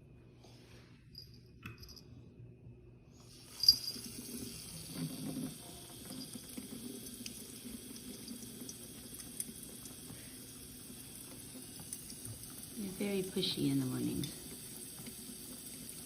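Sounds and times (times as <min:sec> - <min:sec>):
tap water running into sink: 0:03.4 - 0:16.0.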